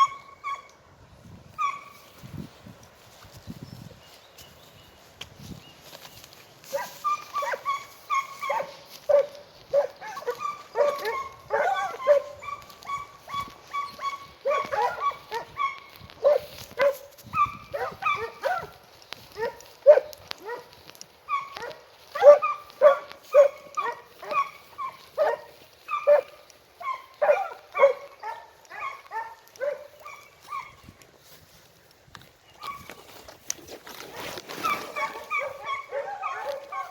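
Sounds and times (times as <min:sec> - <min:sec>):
hounds baying: 0:00.0 - 0:00.8, 0:01.5 - 0:02.1, 0:06.6 - 0:31.6, 0:33.9 - 0:36.9.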